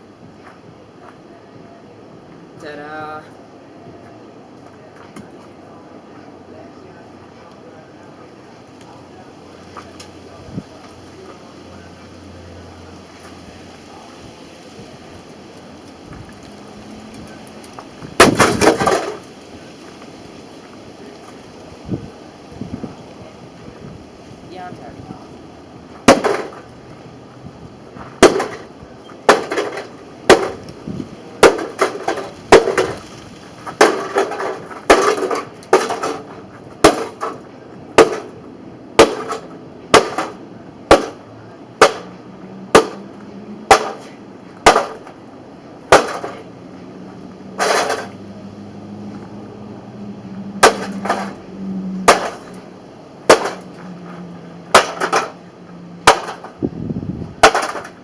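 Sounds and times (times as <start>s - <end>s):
hammer banging on metal casing: 29.3s - 30.6s, 54.7s - 55.4s
loose parts rattling: 54.7s - 55.4s, 57.4s - 58.0s.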